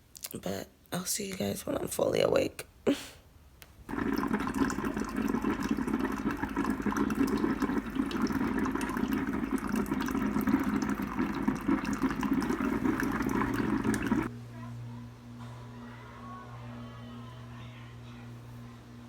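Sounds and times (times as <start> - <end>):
water running: 3.9 - 14.3.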